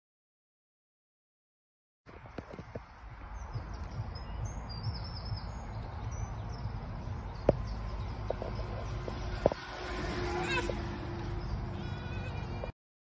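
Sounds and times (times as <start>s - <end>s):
steady low rumble: 2.1s - 11.6s
birds chirping: 2.1s - 12.7s.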